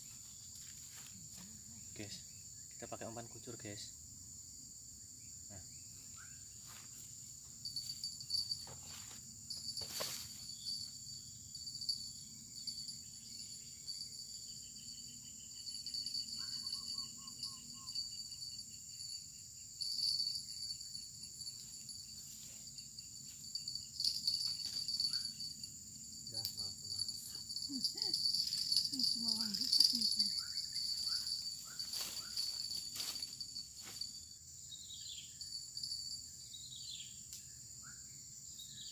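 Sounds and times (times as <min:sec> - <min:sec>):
insects chirring: 0:00.0 - 0:38.9
rustles: 0:06.6 - 0:10.9, 0:28.2 - 0:34.3.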